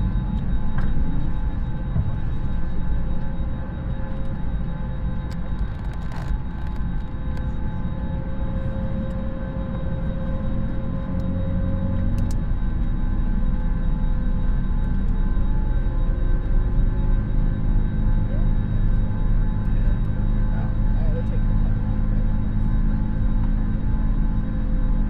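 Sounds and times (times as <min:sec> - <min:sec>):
low cabin rumble: 0:00.0 - 0:25.0.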